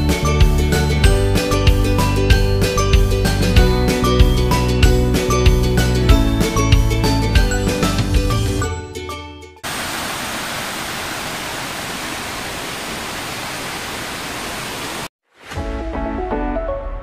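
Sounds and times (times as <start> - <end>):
background music: 0.0 - 9.6, 15.5 - 17.0
waterfall rushing: 9.6 - 15.1.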